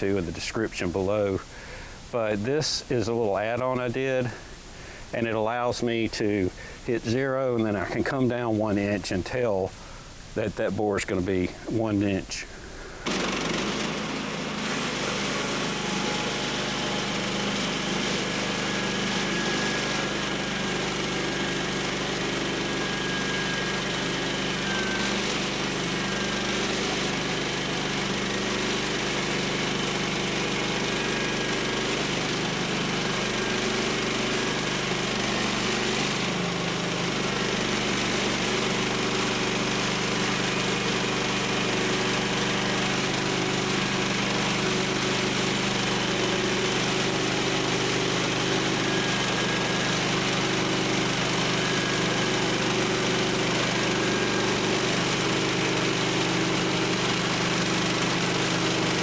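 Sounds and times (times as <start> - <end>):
sawmill engine running: 12.8 - 59.0
band saw cutting wood: 13.0 - 59.0.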